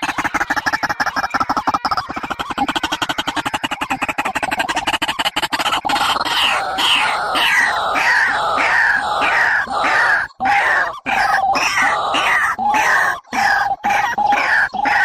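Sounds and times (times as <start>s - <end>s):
harsh descending bird calls: 5.9s - 15.0s.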